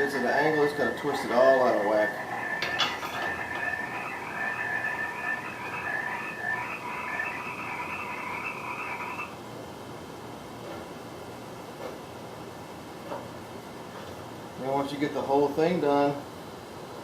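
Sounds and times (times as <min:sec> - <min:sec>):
chorus of frogs calling: 0:00.0 - 0:09.3.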